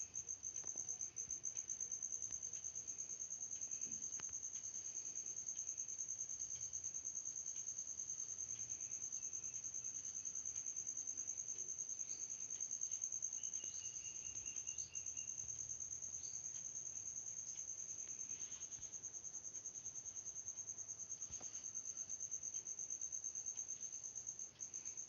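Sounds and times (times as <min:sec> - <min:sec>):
insect high-pitched trill: 0:00.0 - 0:25.0
faint chirps: 0:08.4 - 0:22.8.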